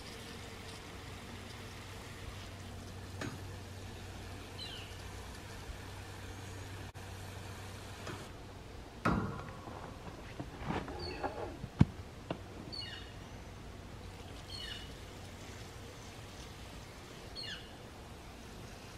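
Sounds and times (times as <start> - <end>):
water spraying from wand: 0.0 - 8.2, 14.0 - 18.9
low steady hum: 0.0 - 18.9
thump: 9.0 - 9.6.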